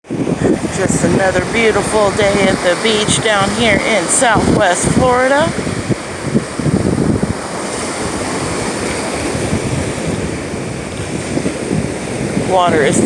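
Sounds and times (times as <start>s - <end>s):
wind buffeting microphone: 0.0s - 13.0s
surf washing onto beach: 0.1s - 13.0s.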